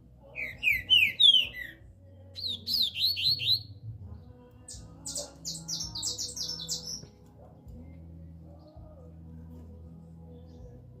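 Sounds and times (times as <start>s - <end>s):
songbird singing: 0.0s - 11.0s.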